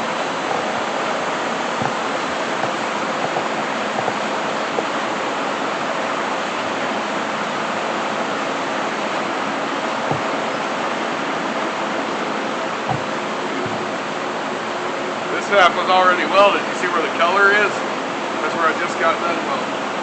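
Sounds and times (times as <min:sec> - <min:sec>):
steady rushing hiss: 0:00.0 - 0:15.0.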